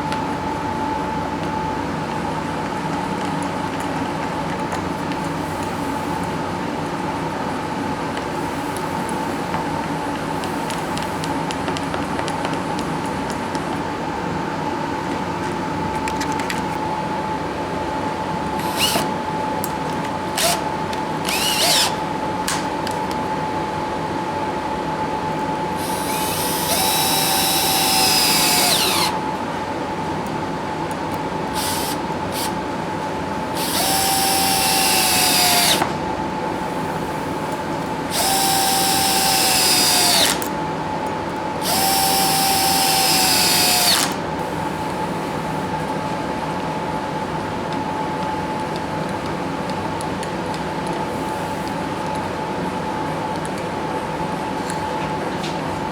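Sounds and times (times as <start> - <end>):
power drill motor whine: 18.6 - 19.1, 20.3 - 22.7, 25.8 - 29.2, 31.6 - 32.6, 33.5 - 36.0, 38.1 - 40.5, 41.6 - 44.6.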